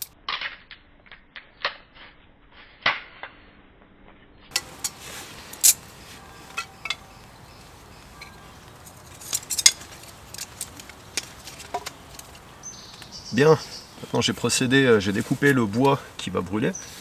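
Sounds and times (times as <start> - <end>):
sticks clattering: 4.5 - 13.2
wood knocking: 8.2 - 13.1.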